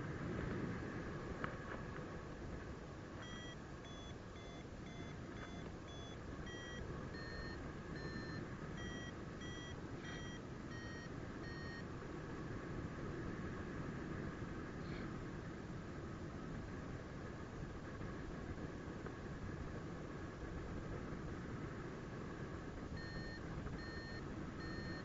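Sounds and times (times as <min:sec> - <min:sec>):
variometer beeping: 0:03.2 - 0:11.9, 0:22.9 - 0:25.0.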